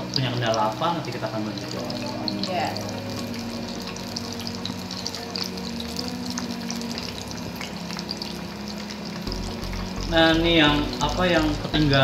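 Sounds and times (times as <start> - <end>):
pastries sizzling in hot oil: 0.0 - 12.0.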